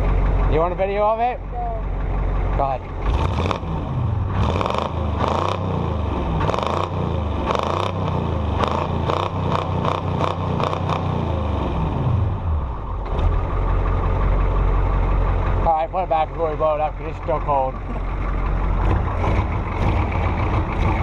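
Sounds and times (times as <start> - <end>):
diesel engine revving: 0.0 - 21.0.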